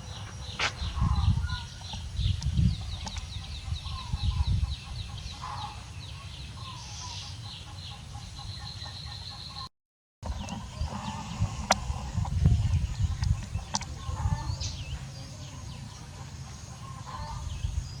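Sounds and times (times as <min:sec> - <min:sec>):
chickens clucking: 0:10.3 - 0:17.7.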